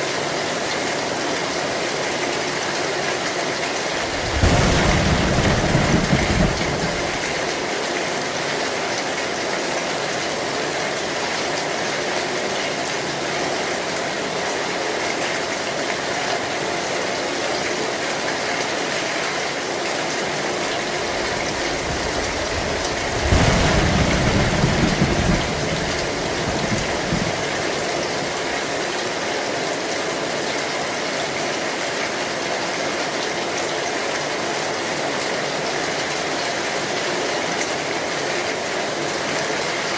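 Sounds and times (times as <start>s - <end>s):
heavy rain on metal roof: 0.0s - 39.9s
thunder rumble: 3.9s - 7.6s, 20.6s - 28.7s.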